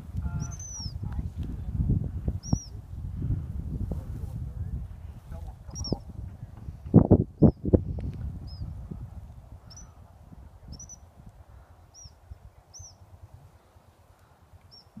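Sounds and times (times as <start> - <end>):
small bird chirping: 0.4 - 1.0, 2.4 - 2.8, 5.7 - 6.1, 8.4 - 8.8, 9.6 - 10.0, 10.7 - 11.1, 11.9 - 13.0, 14.7 - 15.0.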